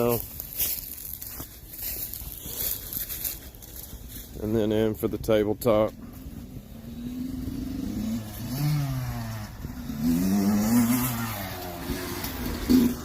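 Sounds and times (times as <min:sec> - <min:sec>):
engine revving: 0:06.0 - 0:13.0.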